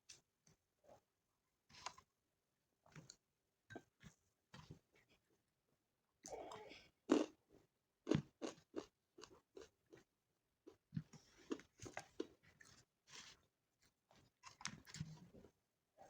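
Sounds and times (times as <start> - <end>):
person chewing crunchy food: 7.1 - 7.3, 8.0 - 10.1.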